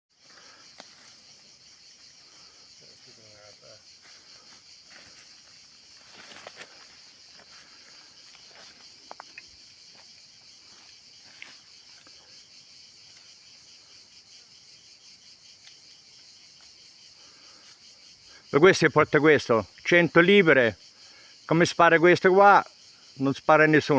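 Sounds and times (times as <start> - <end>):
insects chirring: 0.1 - 23.9.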